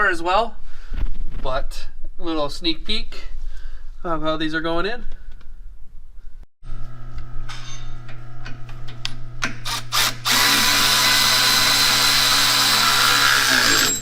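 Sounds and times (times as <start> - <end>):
steady low hum: 5.6 - 10.4
power drill running: 9.4 - 14.0.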